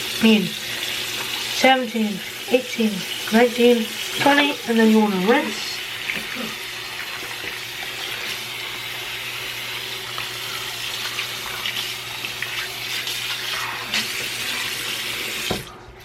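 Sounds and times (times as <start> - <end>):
water running from tap: 0.0 - 16.0.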